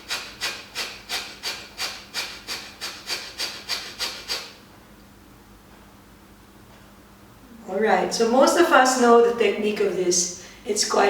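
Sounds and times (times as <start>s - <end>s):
forceful nasal exhales: 0.0s - 4.6s.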